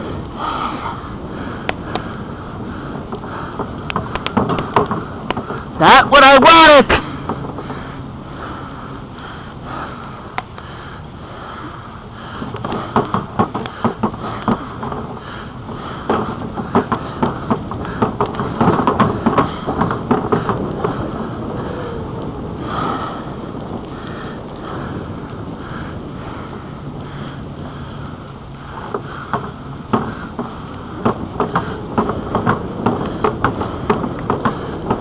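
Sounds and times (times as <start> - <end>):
bicycle rolling on trail: 0.0 - 35.0
sharp clicks and rattles: 3.1 - 5.7
wind rushing: 15.0 - 35.0.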